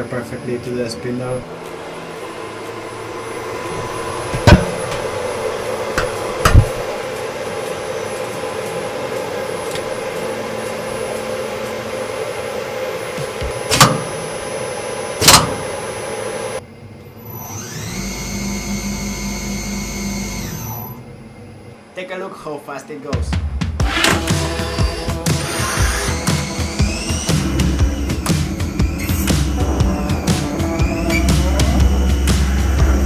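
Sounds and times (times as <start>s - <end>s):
electric motor whine rising: 0.0s - 21.8s, 23.8s - 33.0s
lathe machinery humming: 0.0s - 21.9s, 23.8s - 33.0s
sharp knocks: 4.3s - 5.1s.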